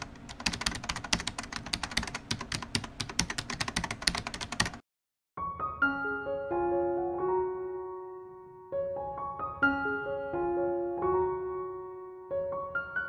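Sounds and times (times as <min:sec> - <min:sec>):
keyboard typing clicks: 0:00.0 - 0:04.8
piano music: 0:05.4 - 0:13.0.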